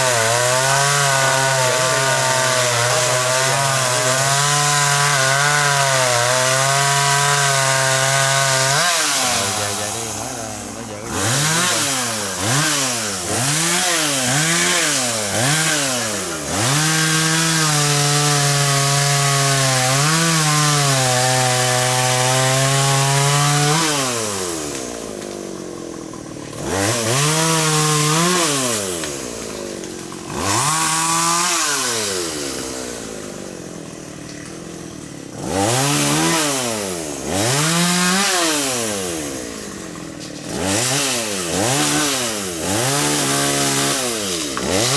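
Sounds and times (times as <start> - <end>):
chainsaw revving: 0.0 - 44.9
chainsaw sawing wood: 0.0 - 44.9.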